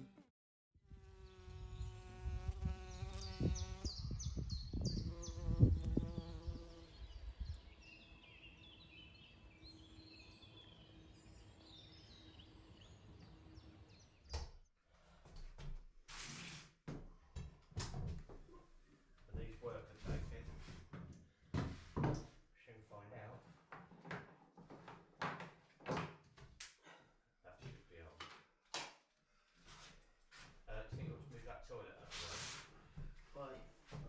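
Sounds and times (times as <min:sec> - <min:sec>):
flying insect buzzing: 0:00.9 - 0:08.1
small birds chirping: 0:01.1 - 0:14.5.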